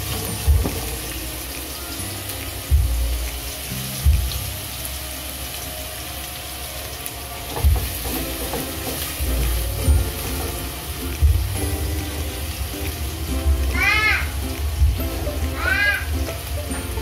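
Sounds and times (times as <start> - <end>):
garlic sizzling in hot oil: 0.0 - 17.0
soft background music: 0.0 - 17.0.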